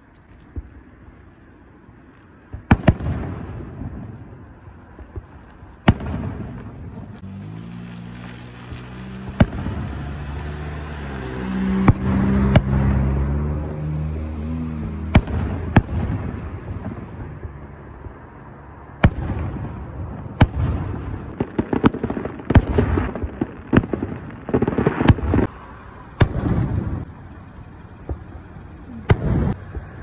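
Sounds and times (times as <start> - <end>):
low rumble: 25.2 - 30.0
low multi-tone hum: 25.5 - 30.0.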